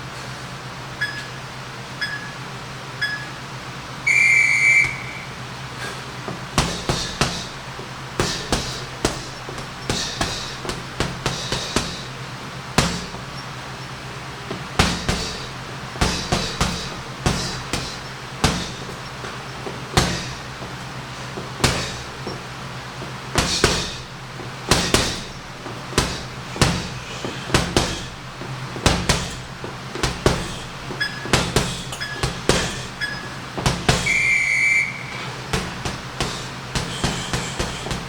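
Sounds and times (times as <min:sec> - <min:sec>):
round timer beeps: 0:01.0 - 0:03.4, 0:31.0 - 0:31.3, 0:32.0 - 0:32.2
punches on heavy bag: 0:05.8 - 0:13.4, 0:14.5 - 0:34.2, 0:35.5 - 0:38.0.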